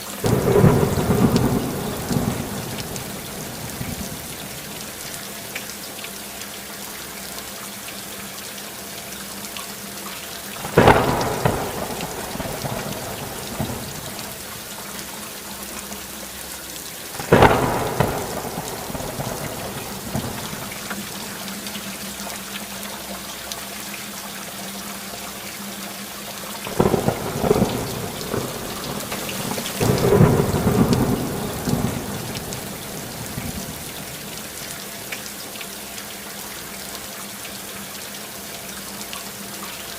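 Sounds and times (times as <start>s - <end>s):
steady rainfall: 0.0s - 39.9s
thunder peal: 0.2s - 4.3s, 10.6s - 14.4s, 17.2s - 21.2s, 26.8s - 34.2s
thunder claps: 0.2s - 4.8s, 10.6s - 14.6s, 17.2s - 21.4s, 26.7s - 34.5s.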